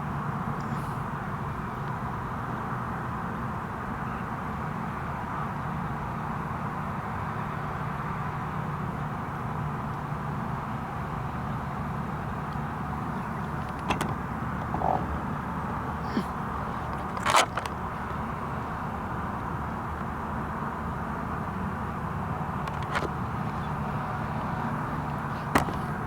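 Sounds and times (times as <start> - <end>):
car road and engine noise: 0.0 - 26.0
short clicks and knocks: 13.4 - 15.2, 25.5 - 25.9.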